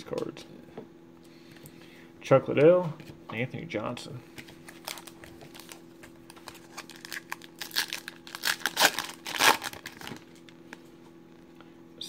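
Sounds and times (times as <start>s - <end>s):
foil wrapper tearing and crinkling: 4.7s - 10.5s.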